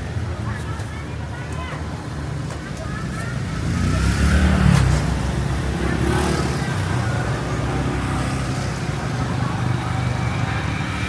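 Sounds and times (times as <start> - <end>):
street noise: 0.0 - 11.0
vehicle engine running: 5.3 - 11.0.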